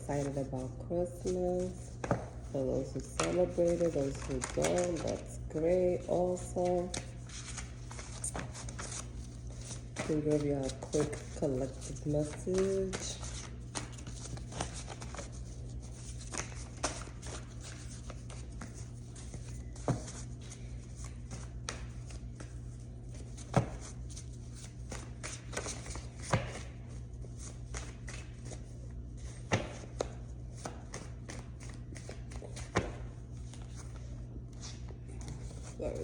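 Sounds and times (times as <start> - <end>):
low steady hum: 0.0 - 36.0
cards being shuffled: 3.0 - 5.4, 6.4 - 22.6.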